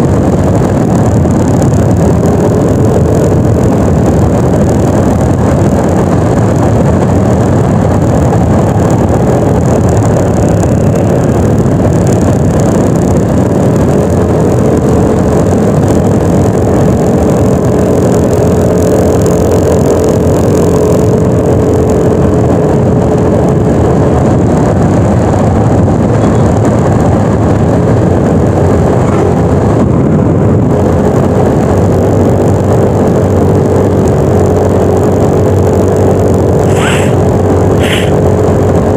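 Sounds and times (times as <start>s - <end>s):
wind and road noise: 0.0s - 38.9s
scooter engine running: 33.5s - 38.9s.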